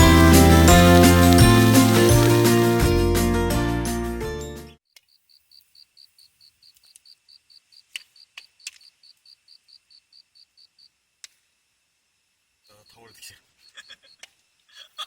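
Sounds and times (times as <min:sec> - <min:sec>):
campfire crackling: 0:00.0 - 0:02.9
cricket chirping: 0:05.0 - 0:11.0.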